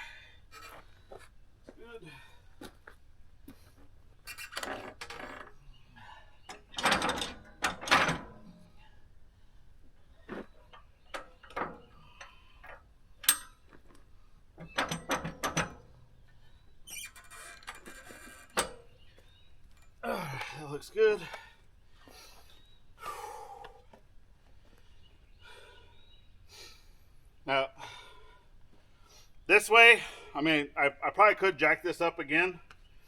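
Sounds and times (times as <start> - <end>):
log and metal fittings clanking: 6.5 - 8.7, 10.2 - 16.0, 17.1 - 19.0.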